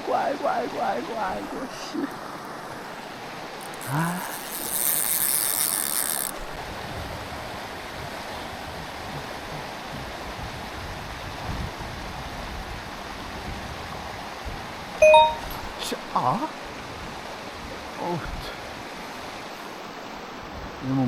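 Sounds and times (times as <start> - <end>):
stream rushing: 0.0 - 21.0
fly reel ratchet buzzing: 3.6 - 6.5.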